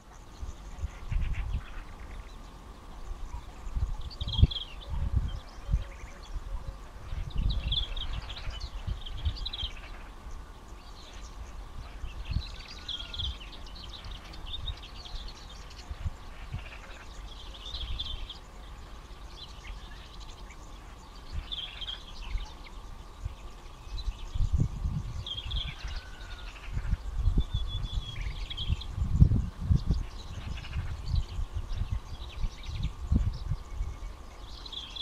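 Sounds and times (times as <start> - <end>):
faint steady hum: 0.0 - 35.0
small birds chirping: 0.0 - 35.0.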